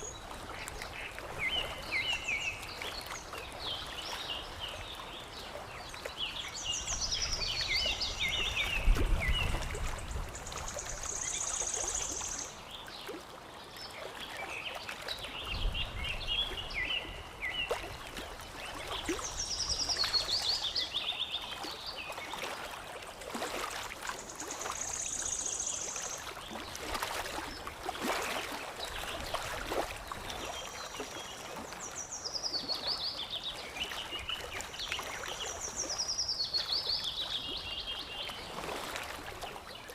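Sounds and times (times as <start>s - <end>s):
water lapping and trickling: 0.0s - 39.9s
songbirds chirping: 24.0s - 39.9s.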